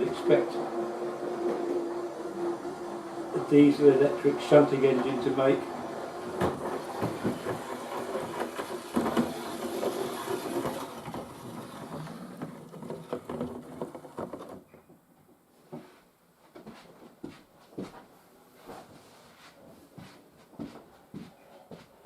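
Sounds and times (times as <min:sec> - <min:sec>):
model locomotive whirring: 0:00.0 - 0:14.6.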